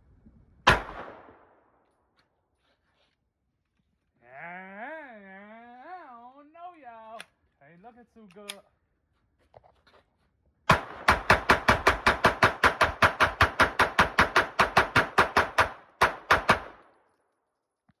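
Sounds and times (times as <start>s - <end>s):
pistol shots rapid fire: 0.7s - 1.4s, 10.7s - 16.9s.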